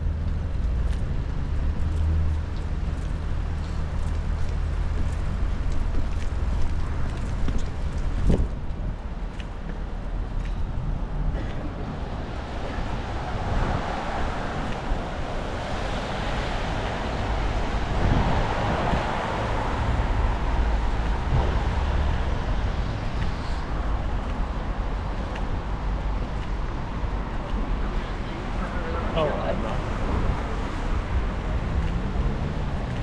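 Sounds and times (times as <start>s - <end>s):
low traffic rumble: 0.0s - 33.0s
tyre hiss on wet road: 12.4s - 24.4s.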